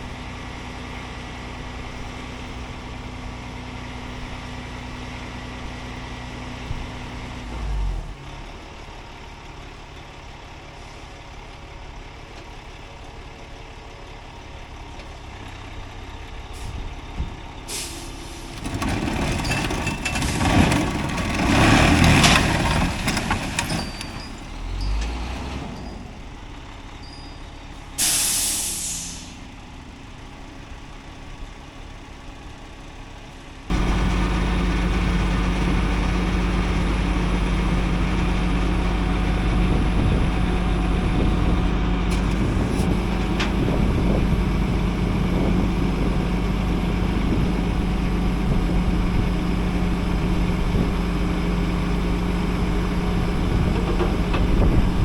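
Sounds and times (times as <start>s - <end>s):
loud truck engine drone: 0.0s - 55.0s
air brakes hissing: 16.6s - 16.9s, 17.7s - 18.7s, 28.0s - 29.5s.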